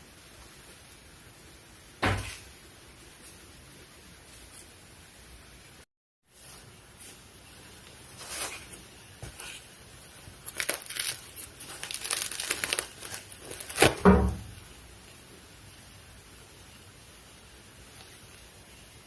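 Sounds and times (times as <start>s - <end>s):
food crackling and crinkling: 2.1s - 5.2s, 6.3s - 15.6s, 16.5s - 19.0s.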